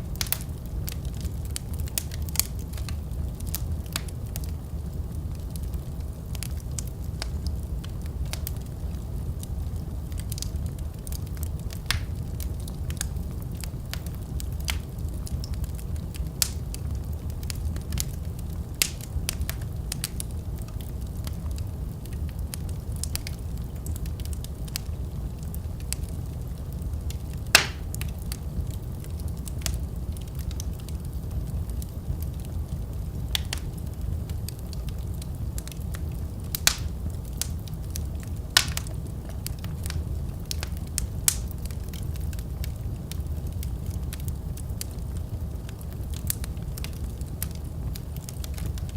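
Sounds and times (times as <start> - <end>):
fire crackles and pops: 0.0 - 48.9
fire flames rumbling: 0.0 - 48.9.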